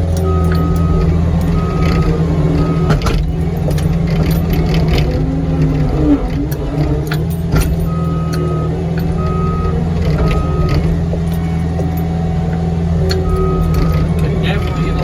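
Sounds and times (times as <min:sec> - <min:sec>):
diesel engine running: 0:00.0 - 0:15.0
sharp metal clanks: 0:00.0 - 0:15.0
backup alarm beeping: 0:00.2 - 0:04.3, 0:07.8 - 0:12.1, 0:13.1 - 0:15.0.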